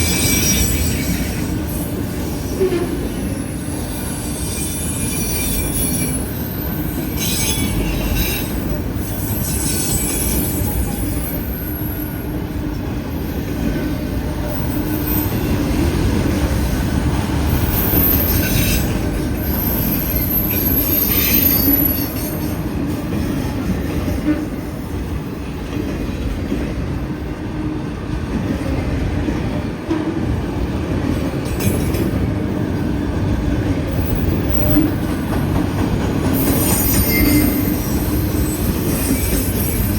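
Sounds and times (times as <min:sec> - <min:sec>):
train wheels squealing: 0:00.0 - 0:25.7, 0:33.9 - 0:39.9
freight train cars rolling: 0:00.0 - 0:39.9.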